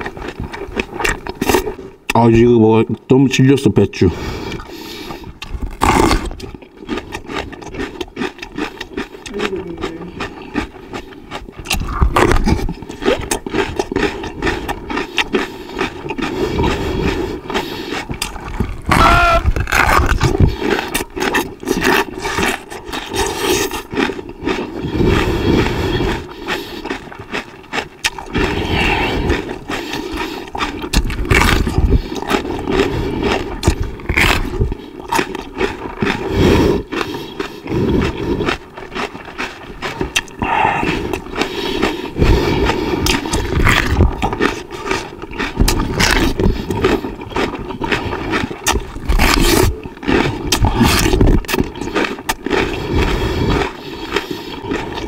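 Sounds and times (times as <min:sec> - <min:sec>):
person chewing crunchy pepper: 0:00.0 - 0:02.5, 0:04.0 - 0:55.0.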